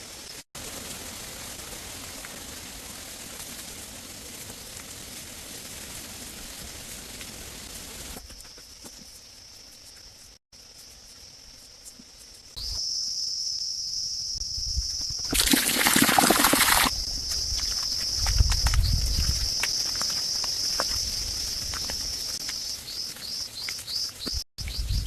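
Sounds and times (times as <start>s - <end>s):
insect chorus: 8.1s - 25.0s.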